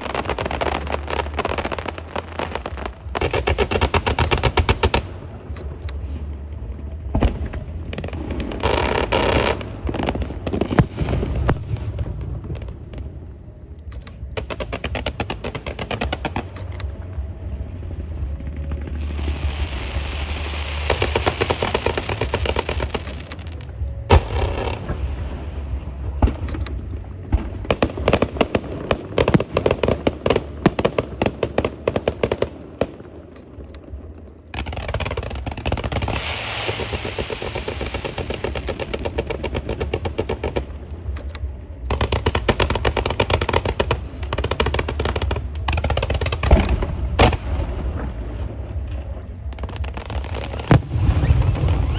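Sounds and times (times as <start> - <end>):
firecracker strings crackling: 0.0 - 17.2, 18.6 - 48.4, 49.3 - 51.9
fireworks hissing: 35.9 - 39.0.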